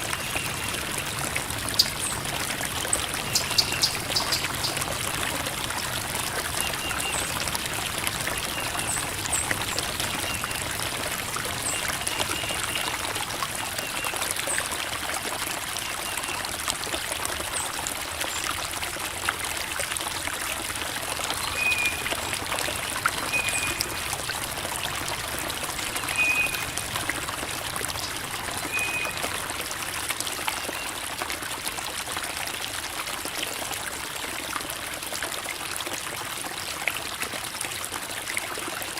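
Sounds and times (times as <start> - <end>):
creek water babbling over rocks: 0.0 - 38.9.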